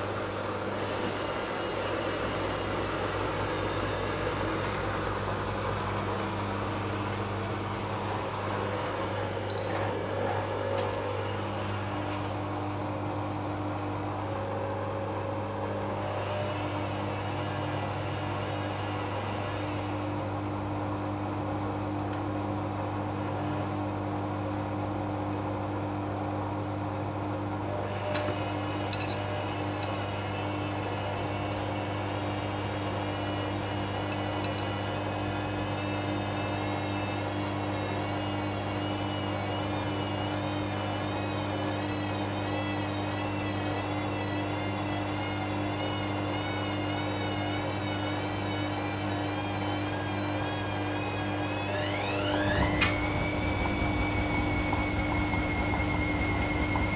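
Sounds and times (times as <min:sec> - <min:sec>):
washing machine motor hum: 0:00.0 - 0:56.9
wavering high whine: 0:07.1 - 0:20.4, 0:27.8 - 0:56.9.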